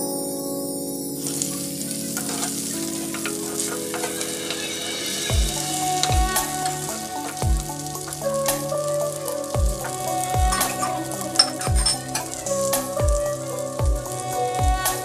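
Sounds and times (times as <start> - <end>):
meat sizzling in oil: 1.2 - 15.0
spatula scraping pan: 2.1 - 5.3
background music with bass thumps: 5.3 - 8.8, 9.6 - 15.0.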